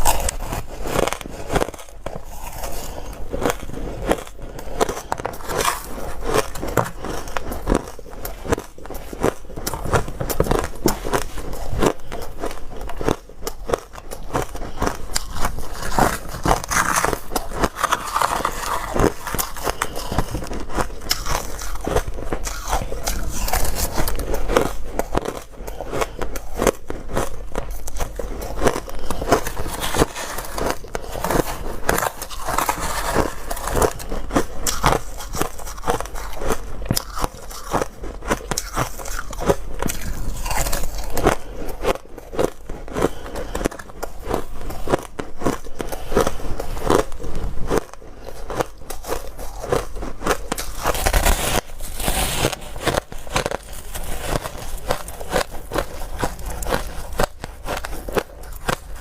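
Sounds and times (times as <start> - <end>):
person chewing crunchy ice: 0.0 - 59.0.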